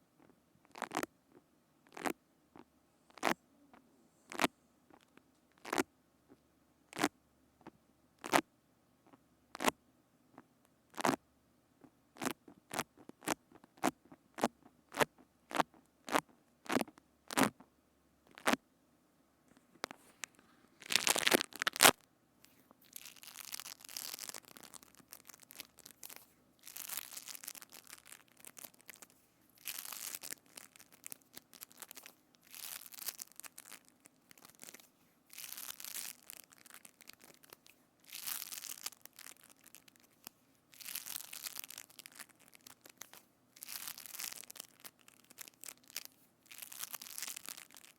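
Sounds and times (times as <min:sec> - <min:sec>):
slime crackling squishes: 0:20.8 - 0:47.9.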